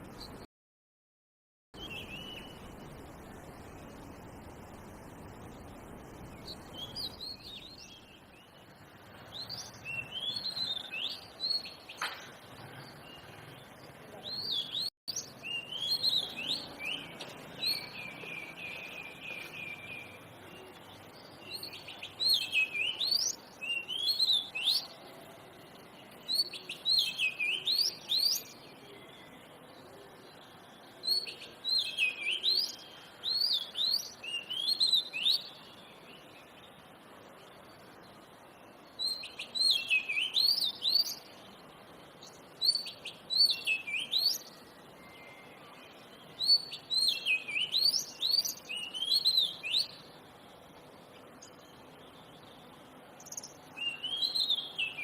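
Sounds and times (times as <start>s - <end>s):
bird singing whistled phrases: 1.8s - 2.6s, 14.3s - 20.2s, 21.4s - 25.0s, 26.3s - 29.4s, 31.0s - 35.7s, 39.0s - 41.3s, 42.6s - 50.0s, 53.3s - 55.0s.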